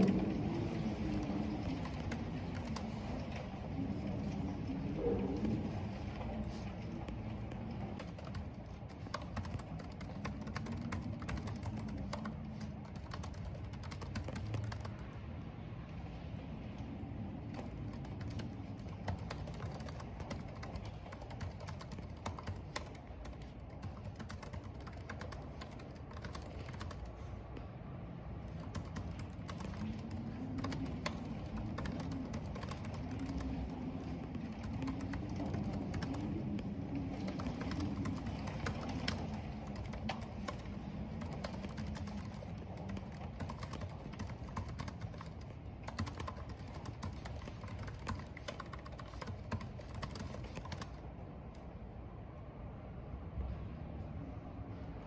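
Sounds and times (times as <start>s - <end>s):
hiss of rain and wind: 0.0s - 55.0s
low wavering wind howl: 0.0s - 55.0s
computer keyboard typing: 1.0s - 3.2s, 8.0s - 15.1s, 17.4s - 27.1s, 28.5s - 36.4s, 37.0s - 51.6s.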